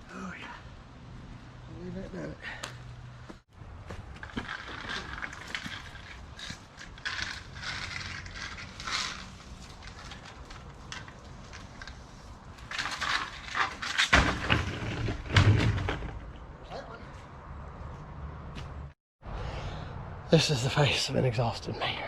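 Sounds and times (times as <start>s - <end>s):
crunching and scraping rocky soil: 3.3s - 16.5s.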